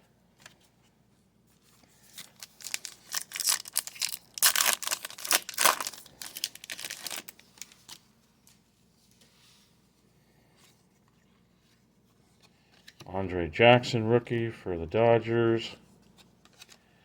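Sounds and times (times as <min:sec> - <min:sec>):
foil wrapper tearing and crinkling: 0:02.0 - 0:08.0.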